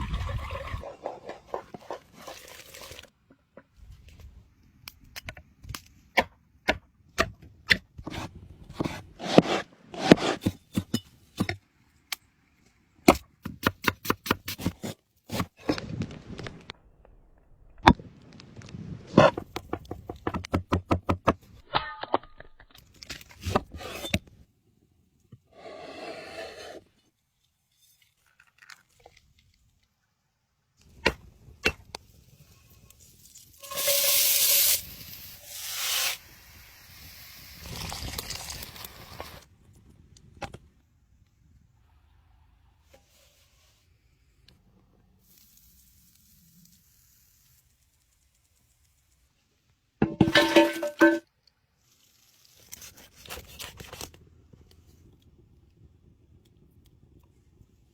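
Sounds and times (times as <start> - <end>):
scraping: 50.0 - 51.2.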